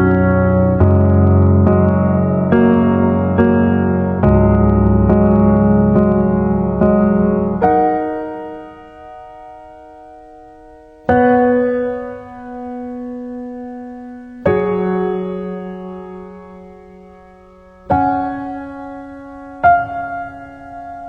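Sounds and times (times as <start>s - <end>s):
piano chords ringing: 0.0s - 21.0s.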